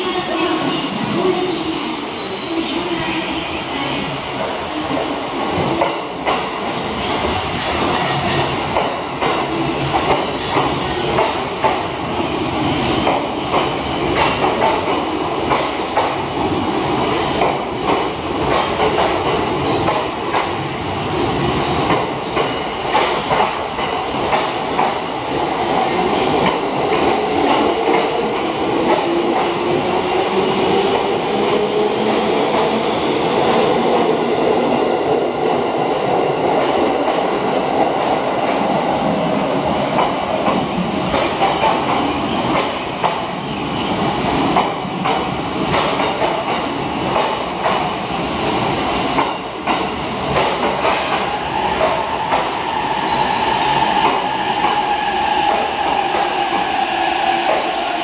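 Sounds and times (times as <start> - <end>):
train wheels clicking over rail joints: 44.5 - 47.9, 49.2 - 52.5.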